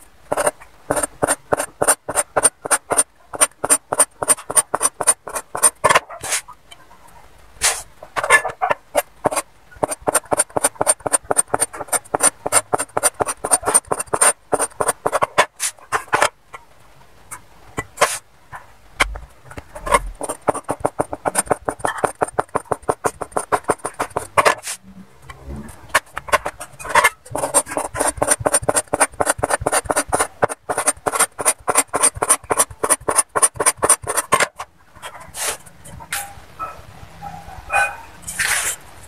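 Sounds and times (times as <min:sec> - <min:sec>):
cleaver chopping dough on board: 0:26.2 - 0:34.5.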